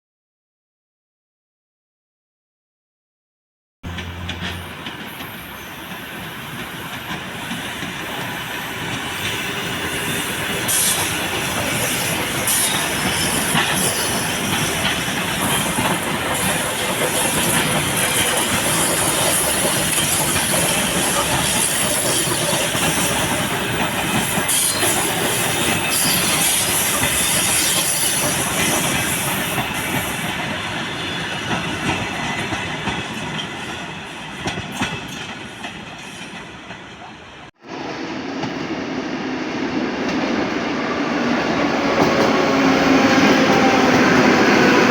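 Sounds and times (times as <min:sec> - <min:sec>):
train clacking over rail joints: 0:03.9 - 0:37.4
train wheels rushing on rails: 0:03.9 - 0:44.9.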